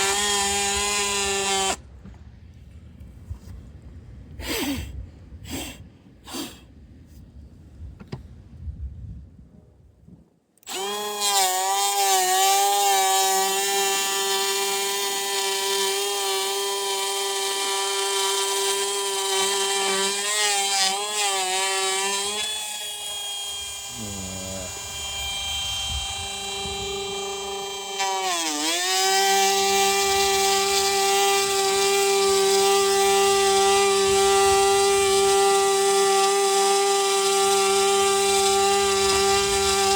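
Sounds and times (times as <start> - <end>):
power tool cutting wood: 0.0 - 1.8, 10.6 - 39.9.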